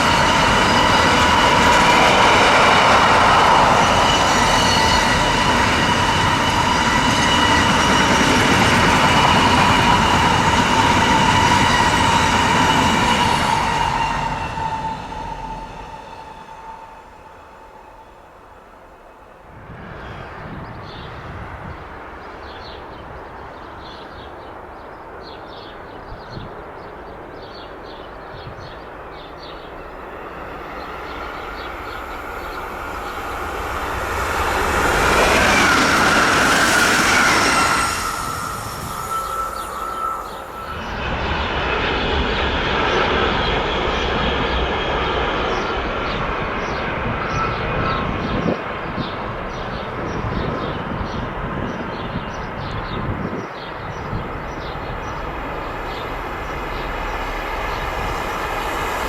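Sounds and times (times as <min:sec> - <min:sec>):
train rumbling past: 0:00.0 - 0:59.0
faint wheel squeal: 0:35.2 - 0:41.5.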